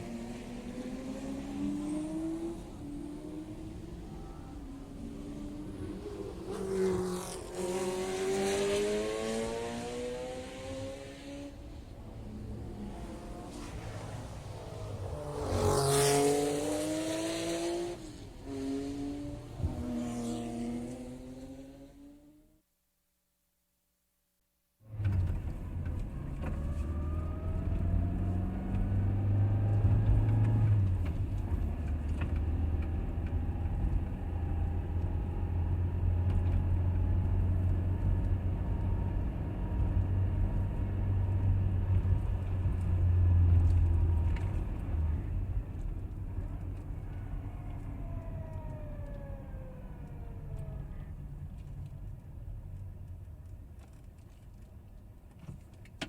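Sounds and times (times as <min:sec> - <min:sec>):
road rumble: 0:00.0 - 0:22.4, 0:24.8 - 0:56.0
car engine inside cabin: 0:24.9 - 0:54.7.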